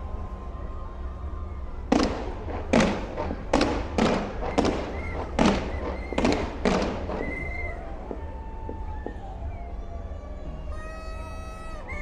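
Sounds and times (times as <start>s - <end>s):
firework bangs: 1.9s - 9.2s.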